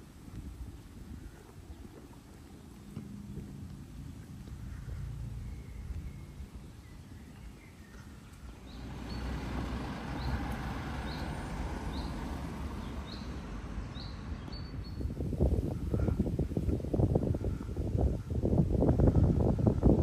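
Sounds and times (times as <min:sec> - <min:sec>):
bird chirping: 0:05.3 - 0:15.2.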